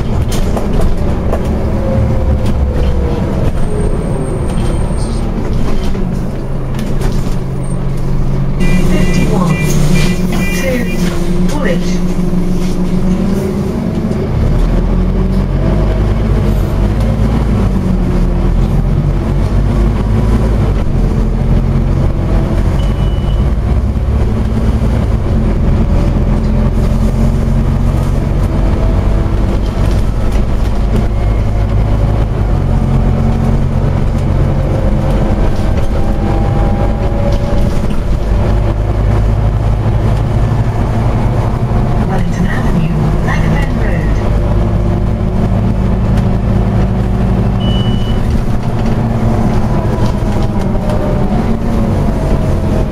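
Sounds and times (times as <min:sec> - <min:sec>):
bus diesel engine drone: 0:00.0 - 0:52.9.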